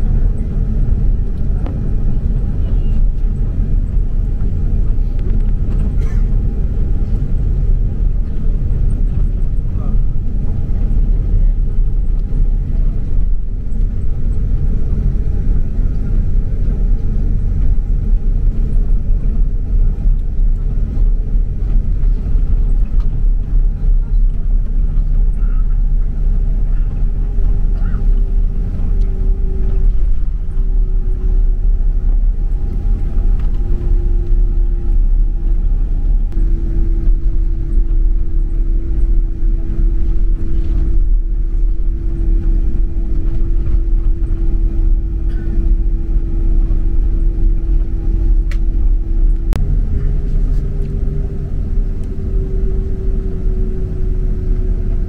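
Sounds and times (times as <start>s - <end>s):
aircraft cabin engine rumble: 0.0s - 55.0s
low hum stepping down: 0.0s - 55.0s
thin constant tone: 24.8s - 55.0s.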